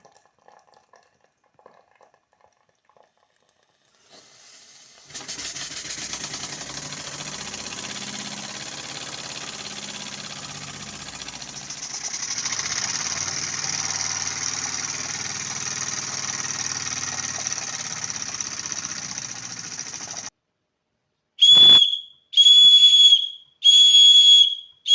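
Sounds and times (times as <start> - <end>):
steam engine hissing: 4.0 - 20.3
steam whistle toots: 21.4 - 24.9.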